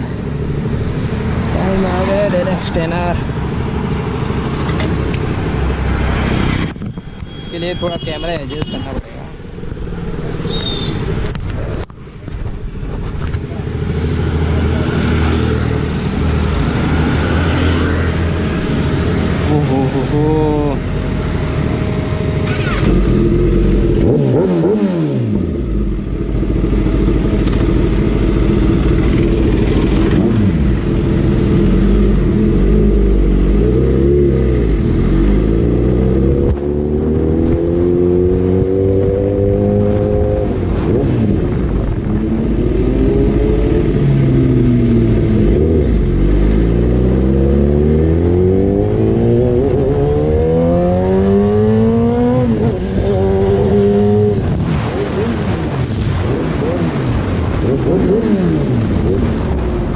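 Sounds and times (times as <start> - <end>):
motorcycle engine accelerating: 12.9 - 59.9.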